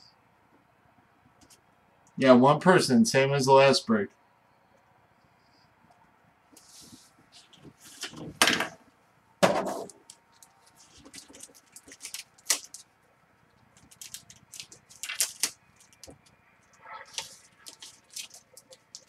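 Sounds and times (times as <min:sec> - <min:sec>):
rustling of things handled: 0:06.5 - 0:08.8, 0:09.5 - 0:19.0.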